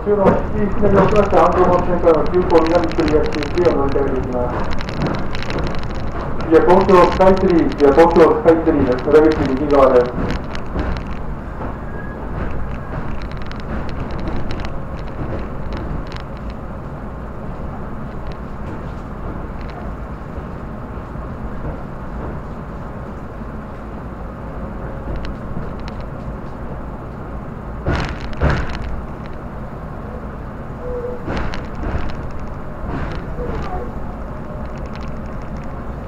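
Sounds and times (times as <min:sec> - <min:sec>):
train wheels rumbling on rails: 0:00.0 - 0:36.0
loud knocks: 0:00.1 - 0:16.2, 0:27.8 - 0:29.2, 0:31.2 - 0:33.9.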